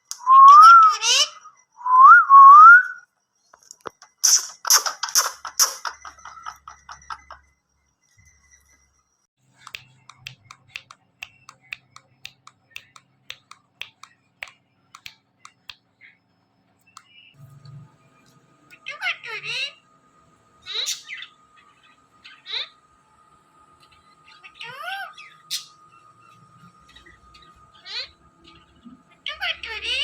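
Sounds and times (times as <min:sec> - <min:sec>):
parrot whistling: 0:00.2 - 0:03.0.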